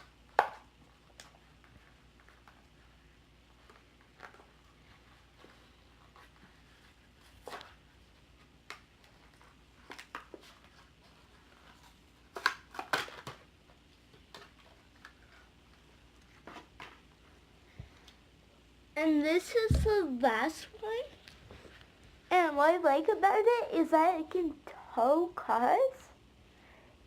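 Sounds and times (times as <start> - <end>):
packaging crinkling and tearing: 8.6 - 13.5.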